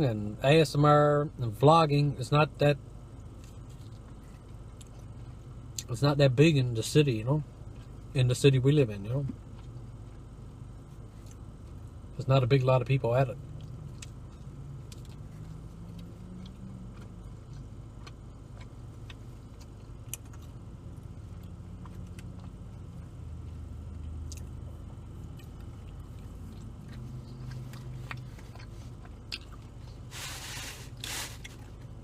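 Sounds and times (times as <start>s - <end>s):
low hum of car: 0.0s - 32.0s
man chewing food: 3.2s - 5.9s, 9.3s - 12.1s, 13.4s - 32.0s.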